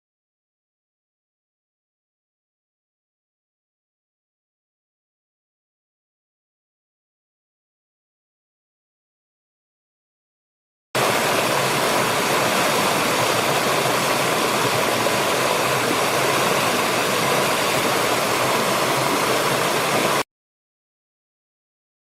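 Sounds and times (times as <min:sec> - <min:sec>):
waterfall rushing: 0:11.0 - 0:20.2.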